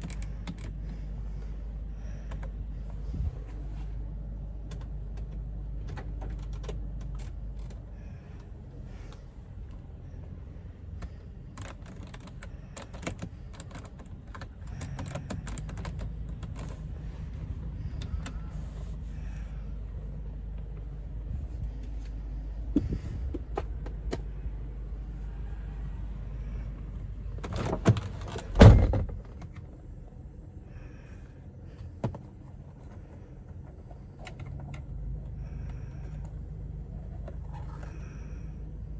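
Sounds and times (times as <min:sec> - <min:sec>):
low steady hum: 0:00.0 - 0:38.9
heavy thud: 0:28.5 - 0:29.2.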